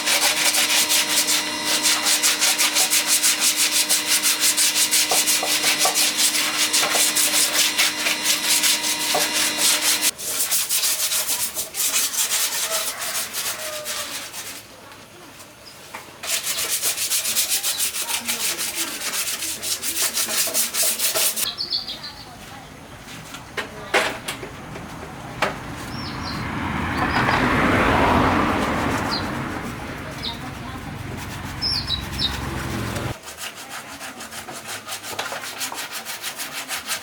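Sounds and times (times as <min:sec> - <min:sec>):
hand sanding strokes: 0:00.0 - 0:14.8, 0:16.2 - 0:21.5, 0:28.3 - 0:37.0.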